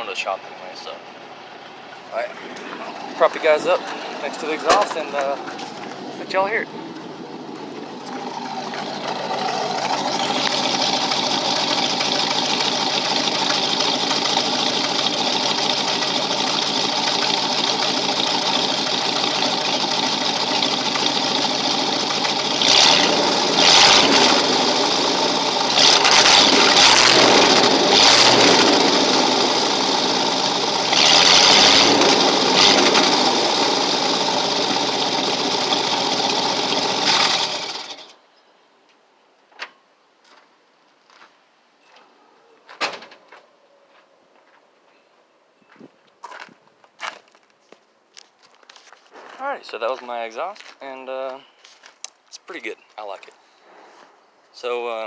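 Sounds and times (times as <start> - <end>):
engine idling through exhaust: 1.4 - 38.1
engine revving and sputtering: 2.2 - 38.1.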